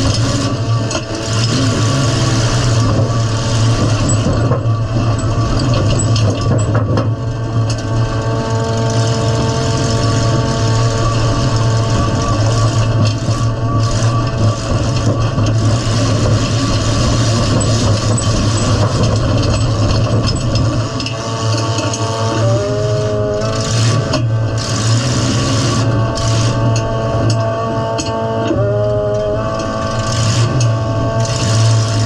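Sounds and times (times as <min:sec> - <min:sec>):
car engine running loud: 0:00.0 - 0:32.0.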